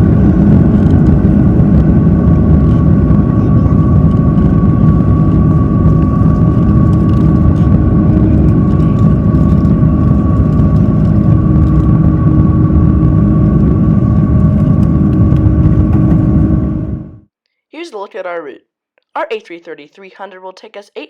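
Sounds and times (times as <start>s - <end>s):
jet engine rumble in cabin: 0.0s - 17.3s
steady whining engine tones: 0.0s - 17.3s.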